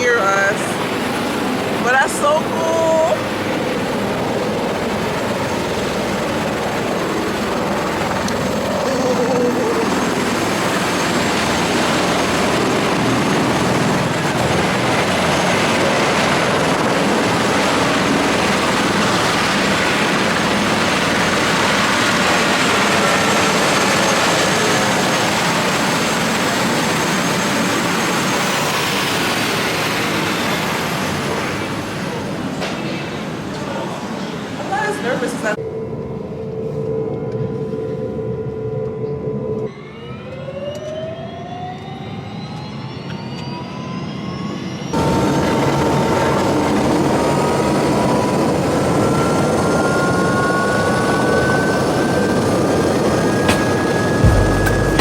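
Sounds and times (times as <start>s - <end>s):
helicopter rotor and engine: 0.0s - 55.0s
high whine falling in pitch: 53.4s - 55.0s.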